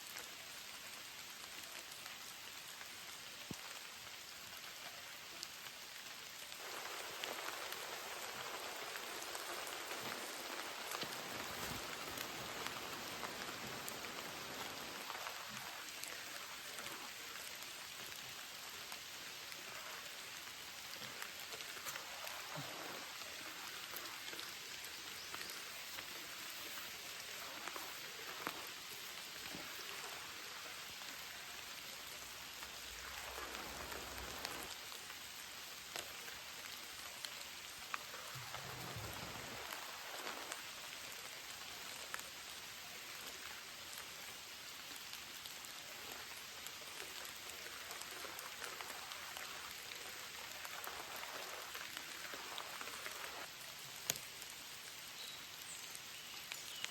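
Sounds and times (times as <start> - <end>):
heavy rain: 0.0 - 56.9.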